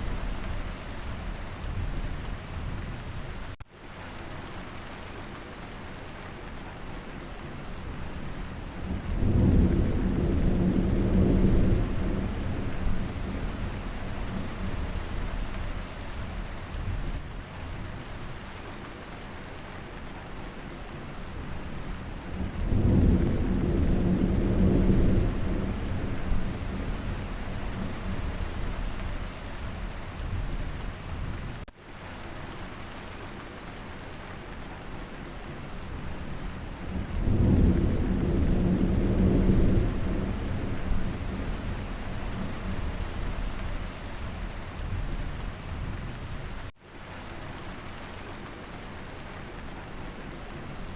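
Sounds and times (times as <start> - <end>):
heavy rain falling: 0.0 - 50.9
thunder rumbling: 9.0 - 17.1, 22.4 - 31.6, 36.8 - 46.7.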